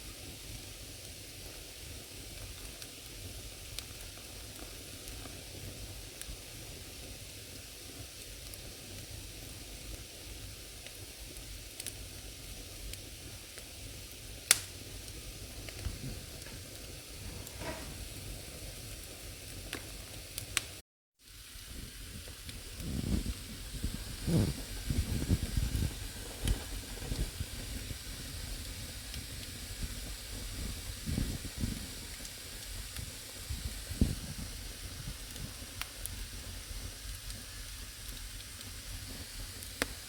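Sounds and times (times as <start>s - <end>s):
fire hissing and crackling: 0.0s - 40.0s
sharp pop of burning wood: 14.4s - 18.2s.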